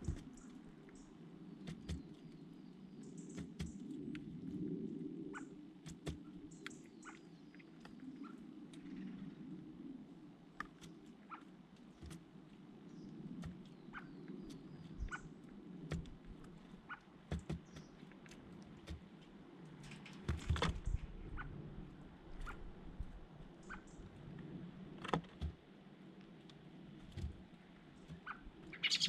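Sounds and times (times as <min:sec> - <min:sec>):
birds chirping: 0:00.0 - 0:03.9, 0:12.8 - 0:15.4, 0:16.7 - 0:19.0, 0:27.9 - 0:29.0.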